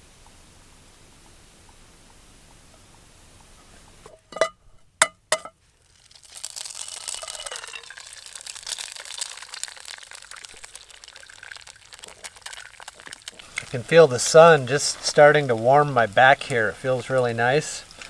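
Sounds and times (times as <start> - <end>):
egg sizzling in hot oil: 3.1 - 18.0
egg tapping on metal pan: 4.3 - 5.6.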